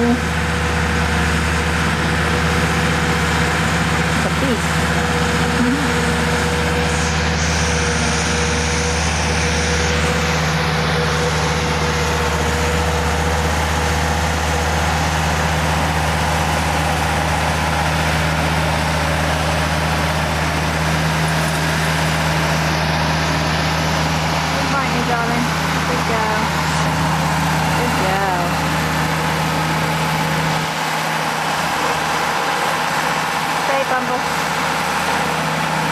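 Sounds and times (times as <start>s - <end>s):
thin steady whine: 0.0s - 35.9s
tractor engine running: 0.0s - 35.9s.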